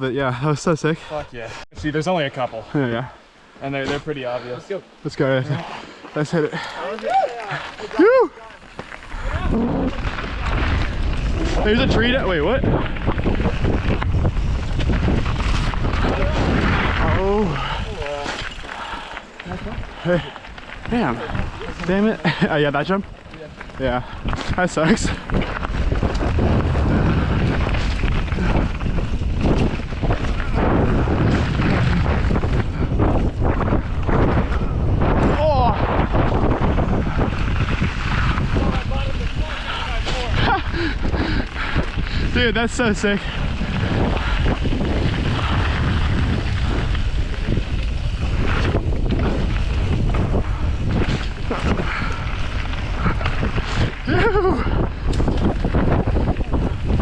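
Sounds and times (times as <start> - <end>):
tyres rolling on dirt trail: 0.0 - 57.0
wind rushing over microphone: 6.3 - 57.0
person exclaiming: 6.8 - 8.6
bike knocking and rattling: 8.5 - 57.0.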